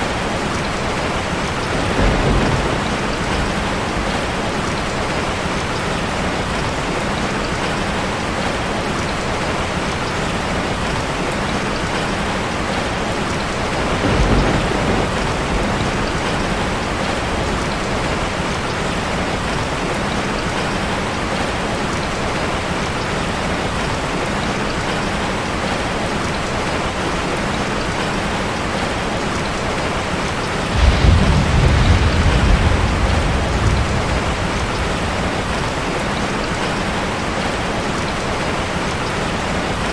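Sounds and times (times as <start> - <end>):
rain drumming on a metal roof: 0.0 - 39.9
thunder rumbling: 0.1 - 6.5, 13.3 - 19.6, 30.6 - 37.3.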